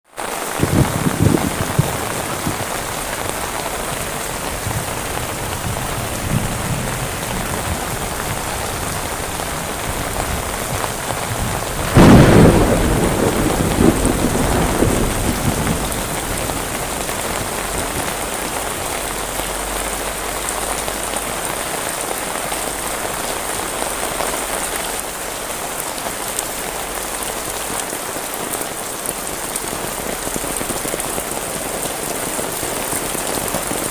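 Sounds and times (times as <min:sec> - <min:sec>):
heavy rain falling: 0:00.0 - 0:33.9
thunder crack and rumble: 0:00.4 - 0:20.0.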